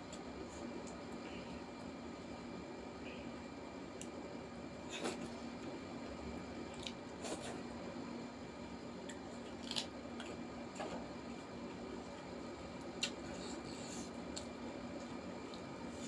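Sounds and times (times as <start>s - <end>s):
crunching raw vegetable: 9.4s - 10.3s.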